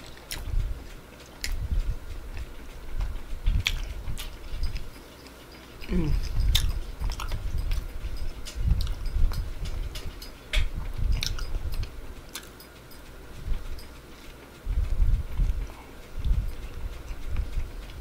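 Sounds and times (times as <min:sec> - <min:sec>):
person chewing: 0:00.0 - 0:01.6, 0:02.3 - 0:09.8, 0:10.8 - 0:12.6
wet mouth clicks: 0:05.8 - 0:07.9, 0:11.1 - 0:12.6.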